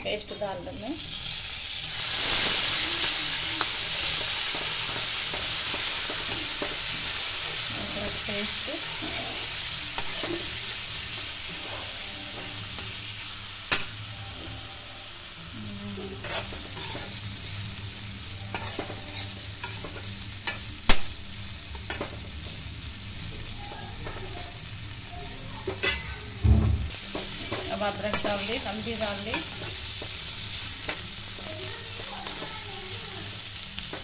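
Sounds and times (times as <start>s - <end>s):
vegetables sizzling in oil: 0.0s - 34.0s
metal spatula scraping pan: 16.2s - 17.2s.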